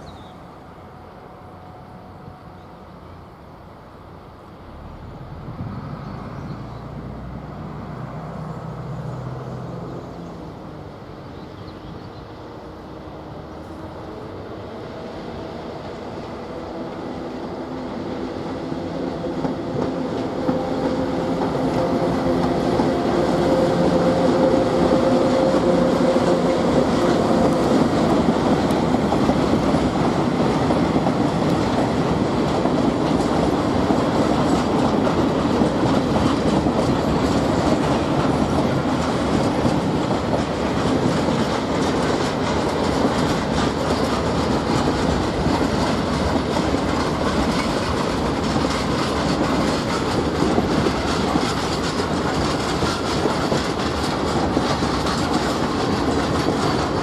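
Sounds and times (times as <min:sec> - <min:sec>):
railcar running on track: 0:00.0 - 0:57.0
wheels clicking over rail joints: 0:18.0 - 0:57.0.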